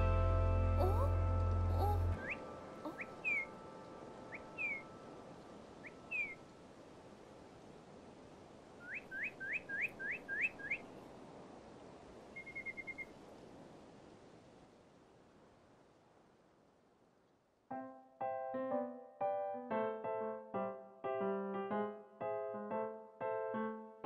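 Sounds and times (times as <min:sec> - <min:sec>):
faint ambient hiss: 0:00.0 - 0:24.0
bird trill: 0:01.7 - 0:03.6, 0:04.3 - 0:05.0, 0:05.8 - 0:06.4, 0:08.8 - 0:10.9, 0:12.4 - 0:13.1
small bird whistling: 0:02.2 - 0:03.5, 0:04.3 - 0:04.9, 0:05.8 - 0:06.4, 0:08.8 - 0:10.9, 0:12.4 - 0:13.1.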